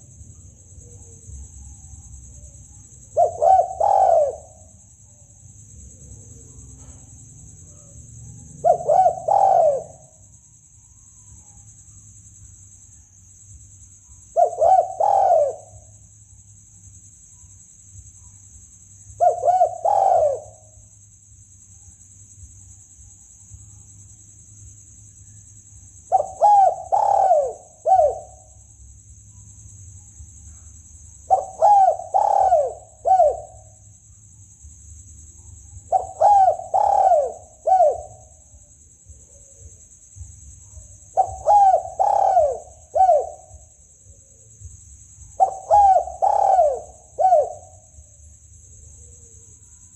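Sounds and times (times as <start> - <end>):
dove cooing: 3.0 - 4.8, 8.4 - 10.2, 14.3 - 15.9, 19.2 - 20.8, 26.1 - 28.5, 31.2 - 33.8, 35.8 - 38.3, 41.1 - 43.7, 45.4 - 48.0.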